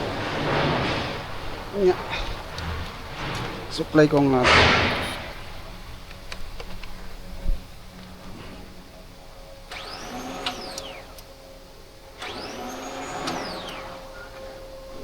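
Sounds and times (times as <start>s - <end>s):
small electric motor whirring: 4.9s - 15.0s.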